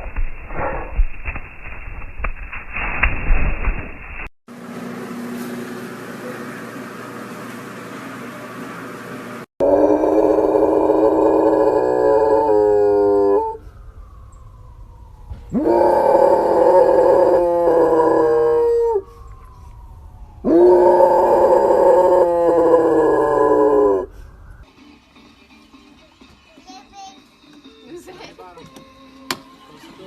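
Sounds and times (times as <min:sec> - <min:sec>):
dog howling: 0:09.6 - 0:13.6, 0:15.5 - 0:19.3, 0:20.3 - 0:24.1.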